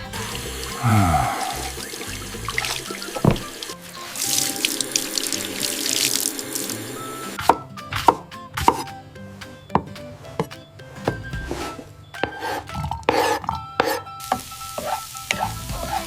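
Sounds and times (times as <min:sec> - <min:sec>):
water rushing from a tap: 0:00.0 - 0:07.0
light background music: 0:00.0 - 0:16.0.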